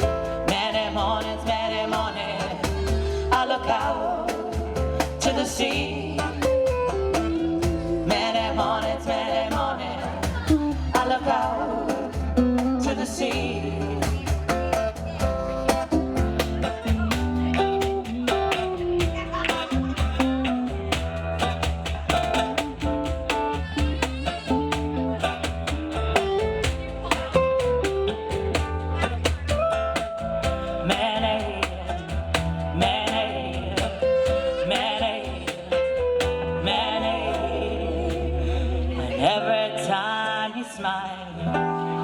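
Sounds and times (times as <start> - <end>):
percussion: 0.0 - 39.3
strummed acoustic guitar: 0.0 - 40.0
bass: 0.0 - 42.0
lead melody with bending notes: 13.4 - 38.3.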